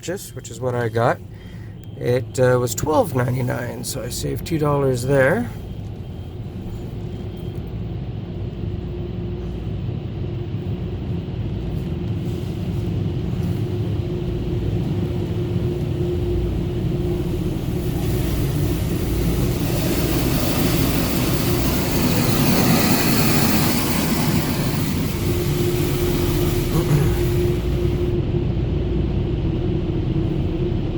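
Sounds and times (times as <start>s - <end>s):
car engine idling: 11.5s - 28.2s.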